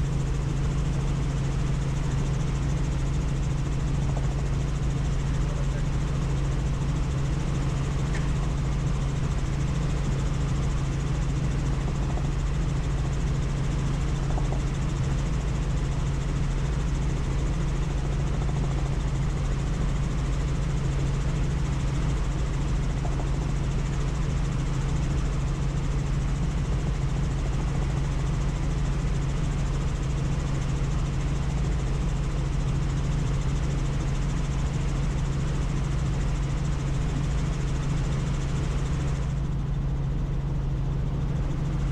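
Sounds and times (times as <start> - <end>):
helicopter engine and rotor drone: 0.0 - 41.9.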